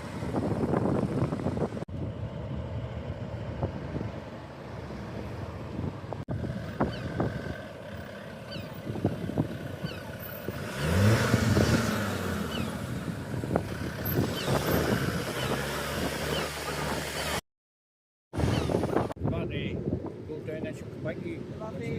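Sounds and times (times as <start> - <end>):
rough wind-like noise: 0.0 - 17.4, 18.3 - 21.9
car engine revving: 6.3 - 17.4.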